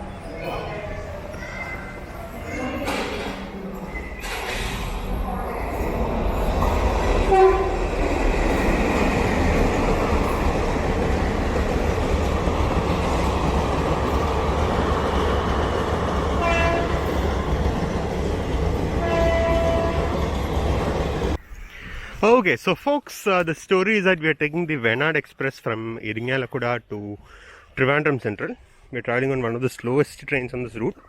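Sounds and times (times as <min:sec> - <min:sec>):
train wheels rumbling on rail: 0:01.9 - 0:21.4
train horn: 0:07.2 - 0:07.9, 0:16.4 - 0:17.1, 0:19.0 - 0:20.2.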